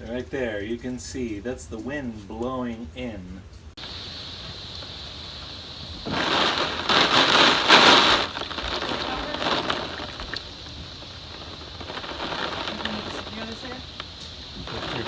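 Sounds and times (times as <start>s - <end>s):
strong wind gust with rain: 3.7s - 15.0s.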